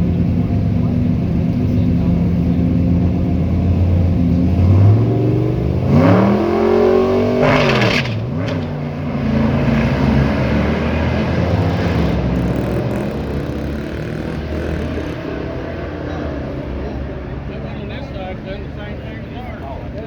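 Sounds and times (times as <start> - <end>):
car engine revving: 4.6 - 16.7.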